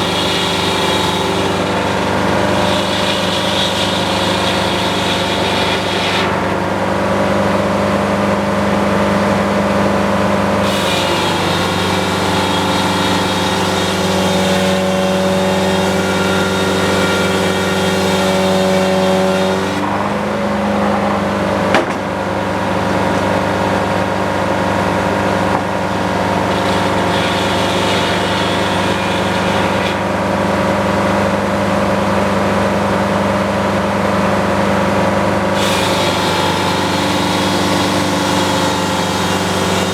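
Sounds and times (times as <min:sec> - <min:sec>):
sawmill engine running: 0:00.0 - 0:39.9
sharp knock: 0:21.7 - 0:22.1.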